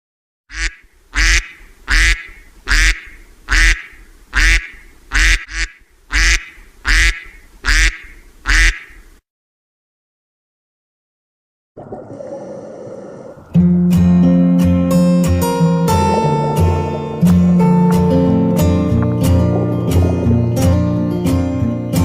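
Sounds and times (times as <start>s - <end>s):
duck quacking: 0.5s - 9.1s, 15.6s - 20.9s.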